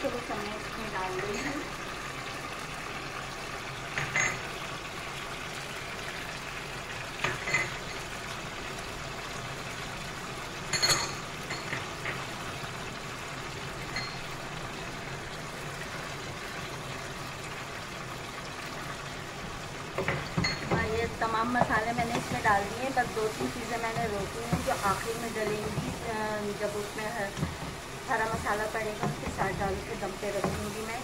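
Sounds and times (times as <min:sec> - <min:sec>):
food sizzling in a wok: 0:00.0 - 0:02.5, 0:07.2 - 0:31.0
utensils clinking against pan: 0:04.0 - 0:04.4, 0:07.2 - 0:08.0, 0:10.7 - 0:12.2, 0:20.0 - 0:21.0.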